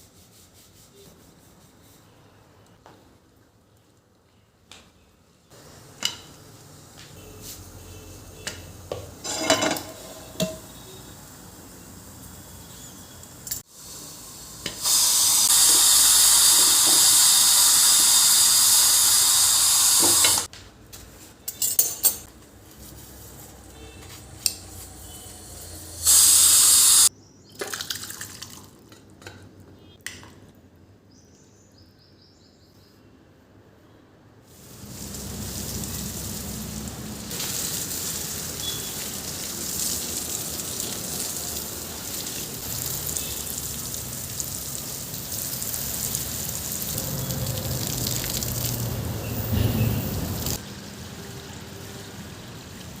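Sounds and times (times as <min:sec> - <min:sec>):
dishes and utensils clinking: 0:08.4 - 0:10.8, 0:21.4 - 0:22.3
kitchen tap running into sink: 0:34.8 - 0:48.9.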